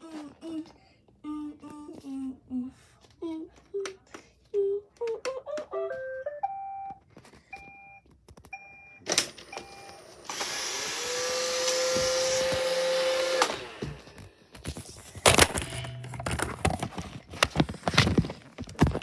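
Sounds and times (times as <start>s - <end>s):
vacuum motor whining: 9.4s - 14.4s.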